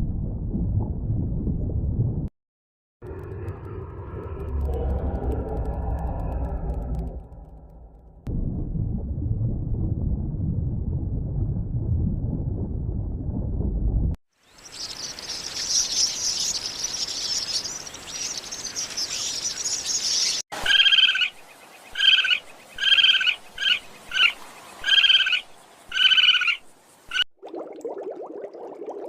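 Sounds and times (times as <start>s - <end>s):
high dense bird chirping: 14.4s - 26.6s.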